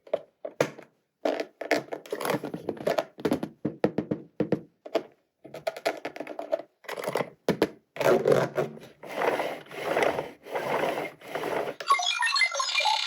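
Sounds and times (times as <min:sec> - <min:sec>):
plastic pieces clicking and tapping: 0:00.0 - 0:07.8.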